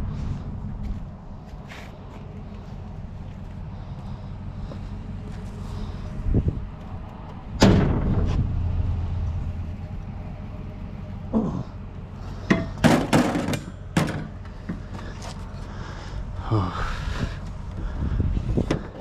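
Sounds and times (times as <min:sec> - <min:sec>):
steady low hum: 0:00.0 - 0:19.0
sharp knocks and clanks: 0:07.5 - 0:08.6, 0:12.4 - 0:15.1
loud ringing bang: 0:07.6 - 0:09.2.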